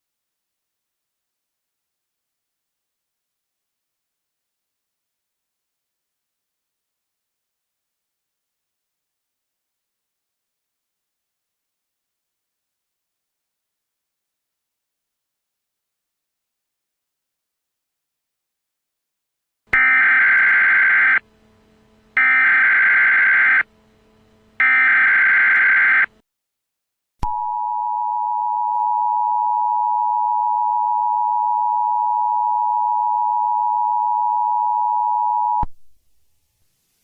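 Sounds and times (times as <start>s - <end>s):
data header bursts: 19.8s - 21.2s, 22.2s - 23.7s.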